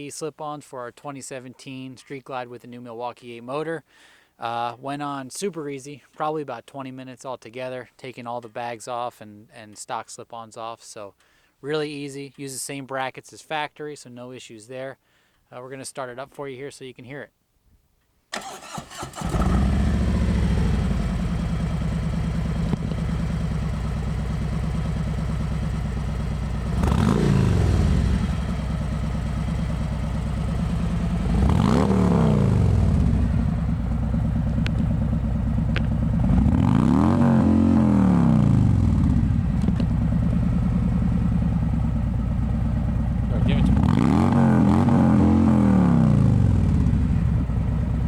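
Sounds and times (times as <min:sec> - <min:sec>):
motorcycle engine idling and revving: 0:18.4 - 0:48.0.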